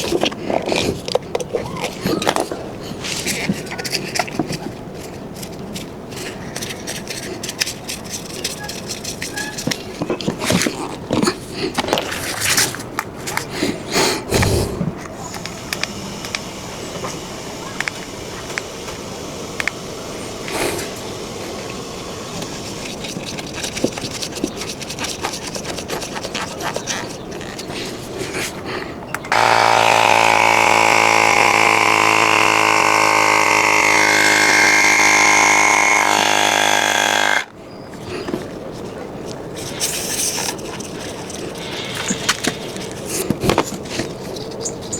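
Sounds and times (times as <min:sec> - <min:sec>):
tools and parts clicking: 0:06.5 - 0:10.8
small electric motor running: 0:15.2 - 0:27.6, 0:29.3 - 0:37.5.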